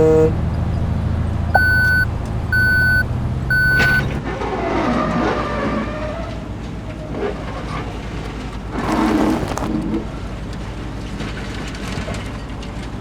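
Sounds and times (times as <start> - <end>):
low engine hum: 0.0 - 4.2
truck reversing alarm beeps: 1.6 - 4.2.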